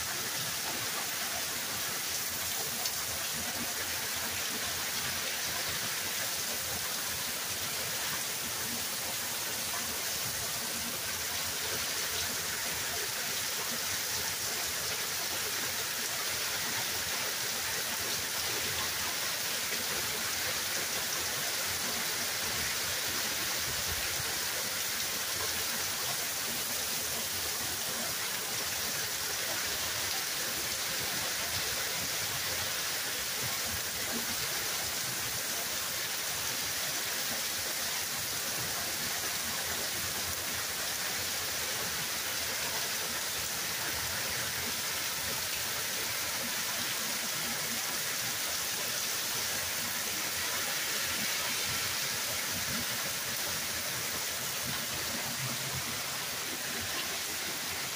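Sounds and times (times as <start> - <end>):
hard rain pouring: 0.0 - 57.9.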